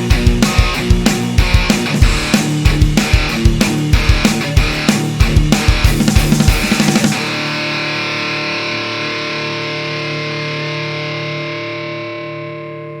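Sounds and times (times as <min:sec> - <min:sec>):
distorted electric guitar chord: 0:00.0 - 0:13.0.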